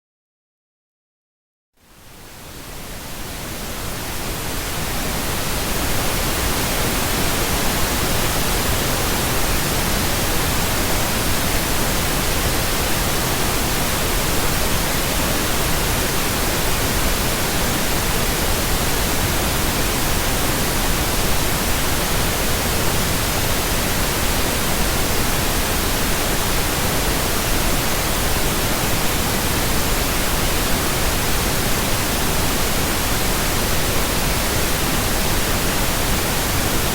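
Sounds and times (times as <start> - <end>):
pink noise hiss: 1.8 - 36.9.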